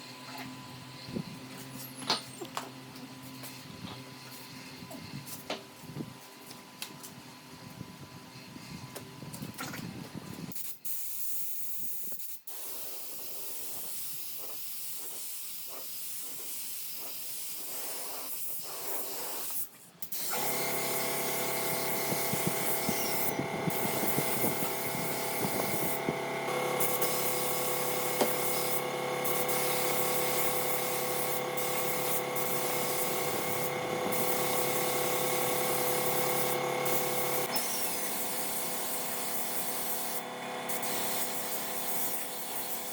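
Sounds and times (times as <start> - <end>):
power tool hissing: 17.0 - 42.9
motor humming: 20.2 - 42.9.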